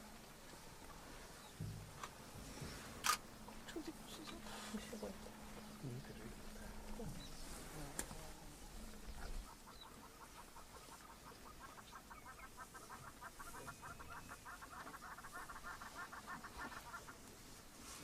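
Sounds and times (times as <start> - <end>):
bird clucking rapidly: 9.4 - 17.2.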